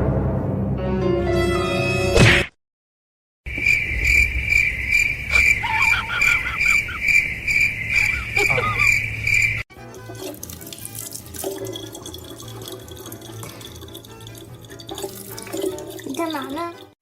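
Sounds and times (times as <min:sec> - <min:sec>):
crickets chirping: 0:03.5 - 0:09.6.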